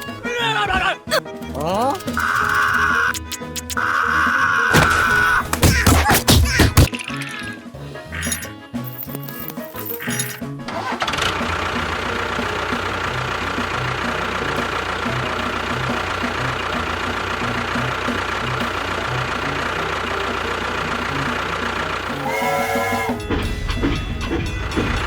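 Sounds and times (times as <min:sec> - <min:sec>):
small motor whining: 0:10.7 - 0:23.3.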